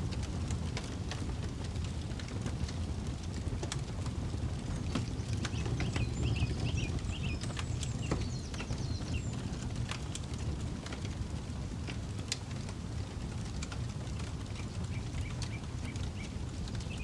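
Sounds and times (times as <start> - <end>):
campfire crackling and popping: 0.0 - 17.0
low steady rumble: 0.0 - 17.0
bird chirping: 5.2 - 9.4, 14.9 - 17.0.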